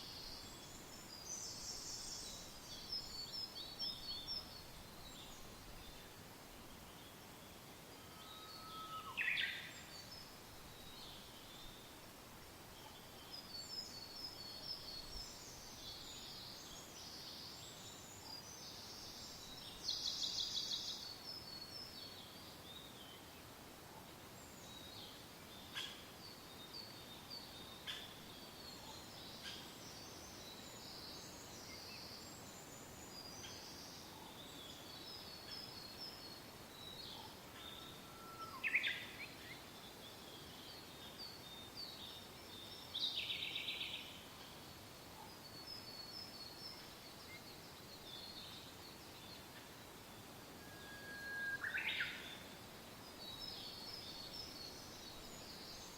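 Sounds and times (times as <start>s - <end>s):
soft wind: 0.0s - 55.9s
songbirds chirping: 0.0s - 55.9s.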